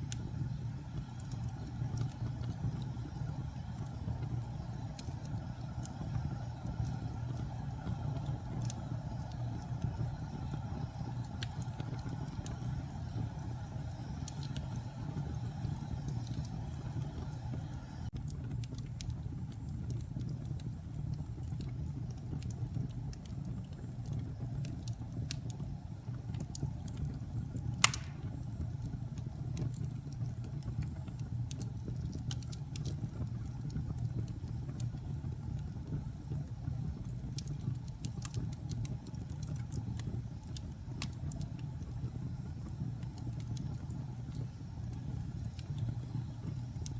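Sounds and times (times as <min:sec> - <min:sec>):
fire crackling and popping: 0:00.0 - 0:46.9
wood fire rumbling: 0:00.0 - 0:46.9.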